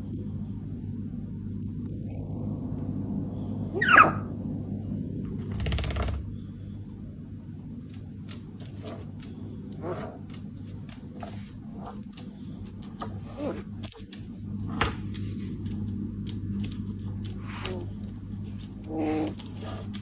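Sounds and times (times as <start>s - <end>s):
steady low hum: 0.0s - 20.0s
parrot squawk: 3.8s - 4.3s.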